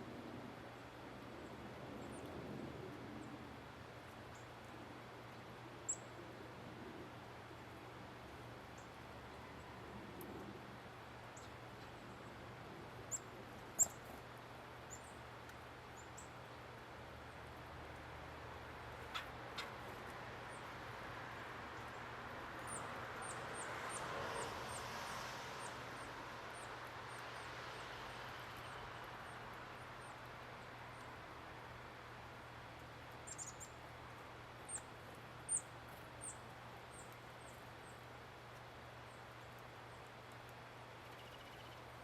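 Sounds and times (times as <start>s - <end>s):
soft rush of background noise: 0.0s - 42.0s
songbirds high call notes: 33.2s - 34.9s.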